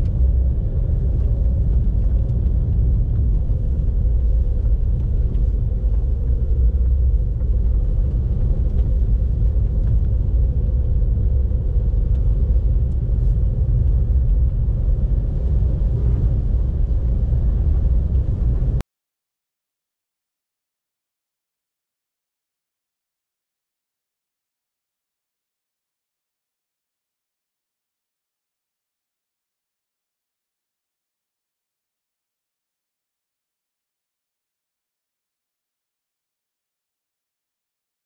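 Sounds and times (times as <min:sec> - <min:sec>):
car road and engine rumble: 0:00.0 - 0:18.8.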